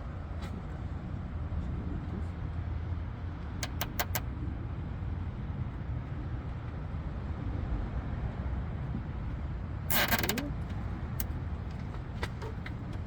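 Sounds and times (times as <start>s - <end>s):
clips clicking into place: 3.6s - 4.2s.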